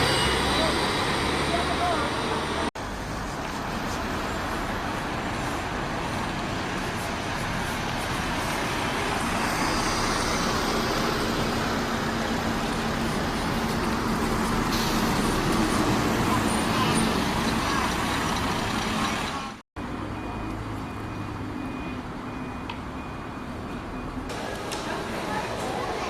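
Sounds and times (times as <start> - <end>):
traffic: 0.0 - 26.0.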